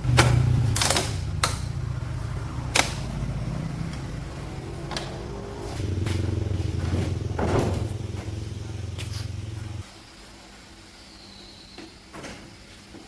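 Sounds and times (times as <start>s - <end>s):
low hum: 0.0s - 9.8s
sharp knocks: 4.7s - 9.5s.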